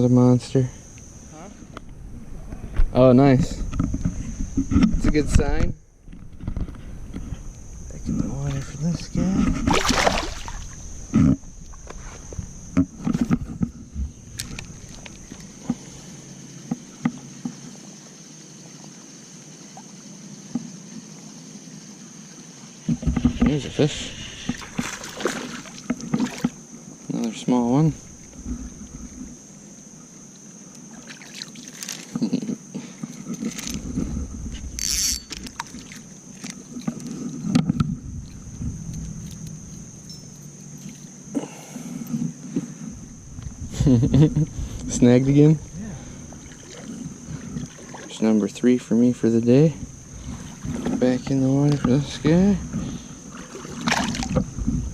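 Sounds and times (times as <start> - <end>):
river water sloshing and trickling: 8.5 - 11.9, 24.4 - 27.1, 28.0 - 32.2, 33.0 - 41.4, 45.4 - 48.8, 49.8 - 54.9.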